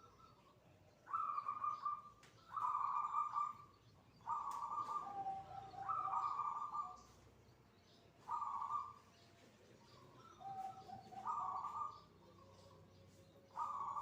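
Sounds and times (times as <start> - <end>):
dove cooing: 1.0 - 7.1, 8.2 - 14.0.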